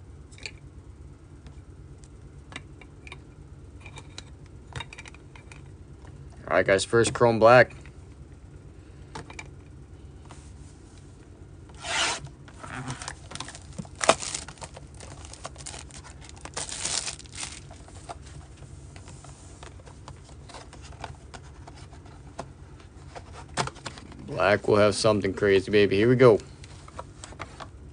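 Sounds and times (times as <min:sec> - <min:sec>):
wrapper and cardboard tearing: 0:11.8 - 0:17.8.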